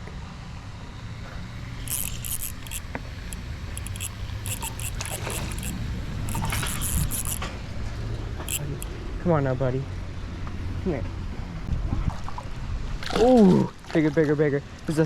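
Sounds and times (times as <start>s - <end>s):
fishing reel clicking: 1.6s - 8.9s.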